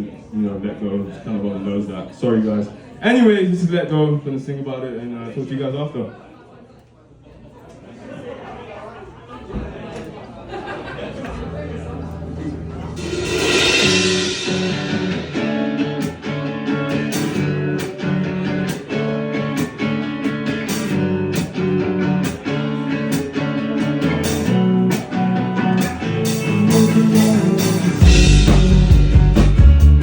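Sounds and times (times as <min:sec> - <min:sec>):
heavy low bass: 0:11.0 - 0:16.0, 0:26.3 - 0:30.0
guitar picking and strumming: 0:11.3 - 0:30.0.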